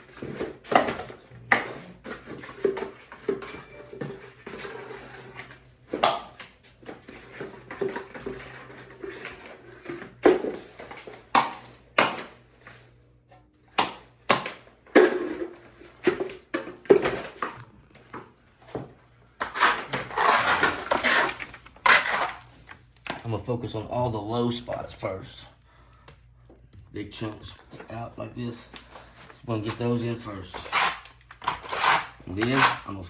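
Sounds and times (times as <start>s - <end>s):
trowel scraping plaster: 19.4s - 22.5s, 30.3s - 33.0s.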